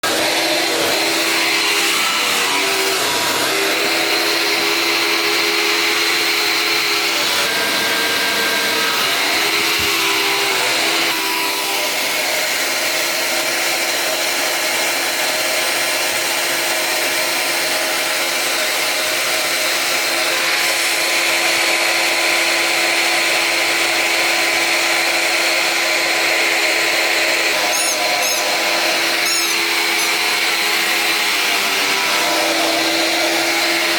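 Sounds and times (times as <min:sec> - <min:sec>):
vacuum cleaner running: 0:00.0 - 0:33.9
high squeaks: 0:27.6 - 0:30.9.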